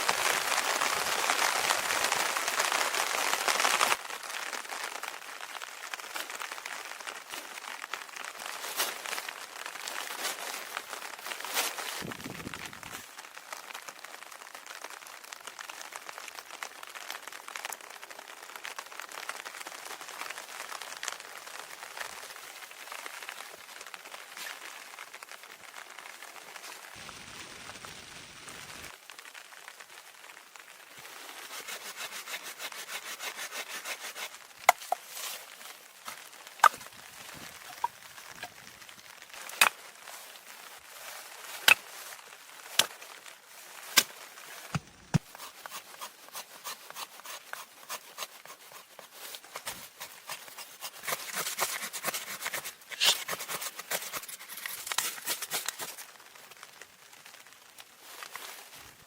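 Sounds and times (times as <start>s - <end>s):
hand saw cutting wood: 31.5s - 34.3s, 45.2s - 55.9s.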